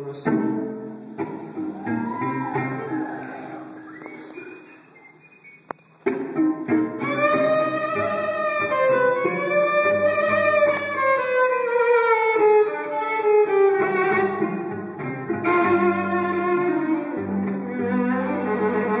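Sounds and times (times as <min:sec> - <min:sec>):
plucked string accompaniment: 0:00.0 - 0:03.9, 0:06.0 - 0:19.0
violin long bowed note: 0:07.0 - 0:14.7, 0:15.4 - 0:19.0.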